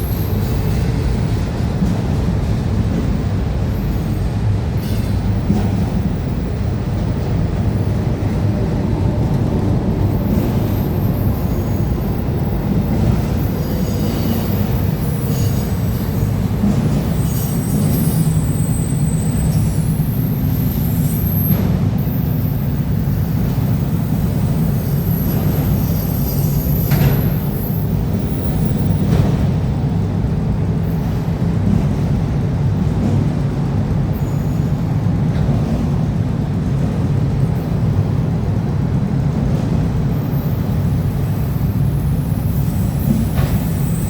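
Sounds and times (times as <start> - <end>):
train cars rumbling on rails: 0.0 - 44.0
high-pitched wheel squeals: 10.2 - 16.4, 17.0 - 28.9, 40.2 - 44.0.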